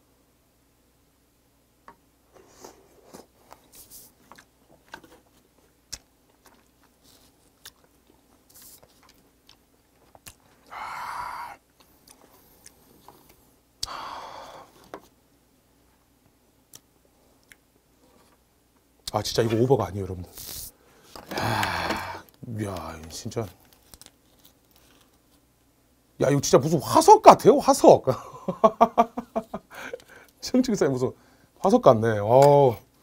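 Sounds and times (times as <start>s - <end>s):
person chewing wet mouth sounds: 5.9s - 10.7s, 11.3s - 14.0s.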